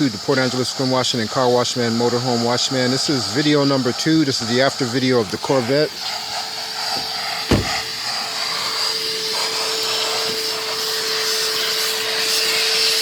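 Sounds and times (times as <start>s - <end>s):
vacuum cleaner running: 0.0s - 13.0s
thump: 7.0s - 7.9s.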